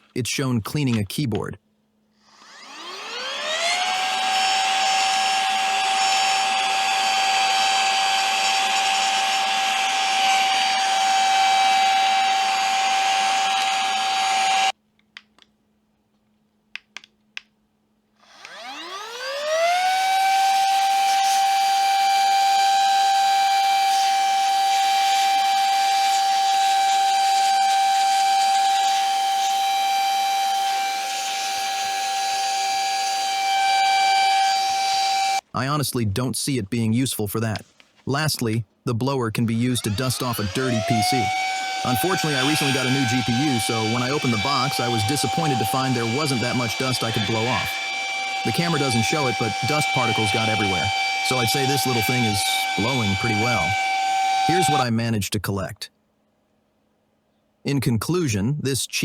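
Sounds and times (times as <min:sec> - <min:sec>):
handheld vacuum motor whining: 0:02.2 - 0:14.8, 0:18.2 - 0:35.4, 0:39.7 - 0:54.8
small clicks: 0:14.9 - 0:17.6.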